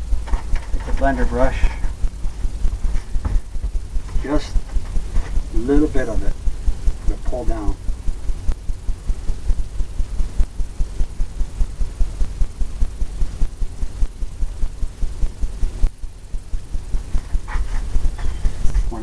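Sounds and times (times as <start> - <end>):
brush scrubbing hiss: 0.7 - 7.8, 16.5 - 19.0.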